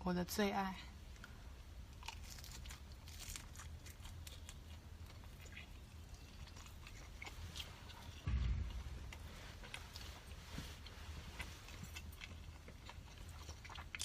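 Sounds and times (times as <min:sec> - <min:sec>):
chewing flatbread: 0:01.9 - 0:08.3, 0:09.1 - 0:14.0
dull low thump: 0:08.2 - 0:11.3.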